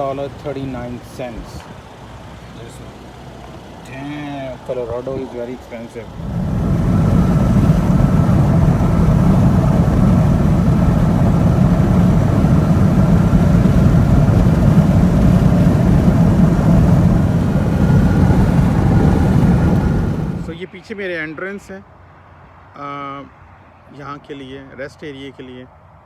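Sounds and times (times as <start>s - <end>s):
car engine: 0.0s - 20.6s
road and wind noise: 0.0s - 26.0s.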